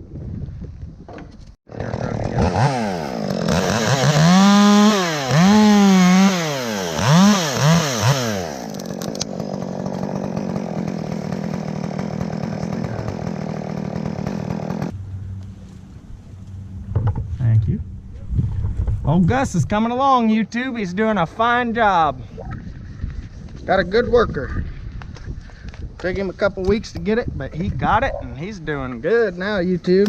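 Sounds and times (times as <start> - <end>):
chainsaw revving and idling: 1.7 - 15.0.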